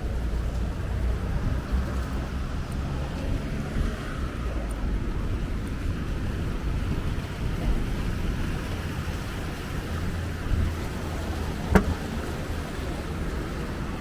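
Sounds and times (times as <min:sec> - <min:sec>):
bus engine and road rumble: 0:00.0 - 0:14.0
sharp knock: 0:11.7 - 0:12.0.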